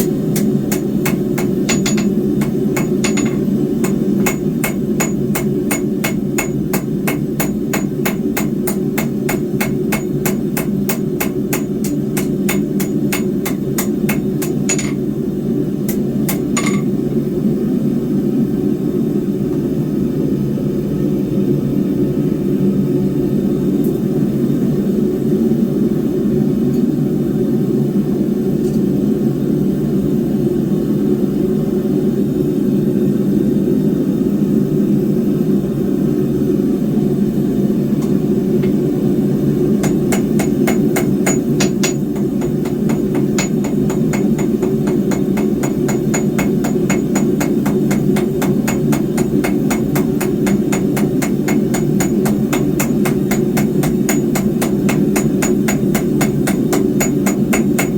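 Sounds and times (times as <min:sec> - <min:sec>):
hammer striking steel on anvil: 0:00.0 - 0:15.1, 0:15.9 - 0:16.9, 0:39.8 - 0:57.9.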